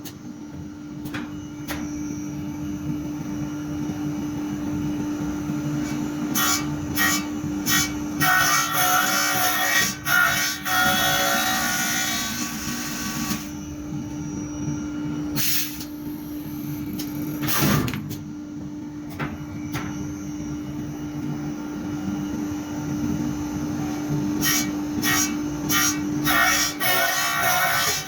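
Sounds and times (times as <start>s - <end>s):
machine motor hum and rumble: 0.0s - 28.0s.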